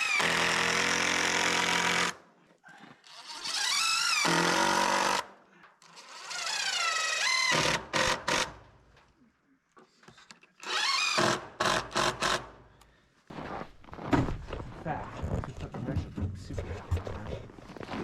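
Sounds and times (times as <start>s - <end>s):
cordless drill driving screws: 3.0s - 5.2s, 5.8s - 8.5s, 10.6s - 12.5s.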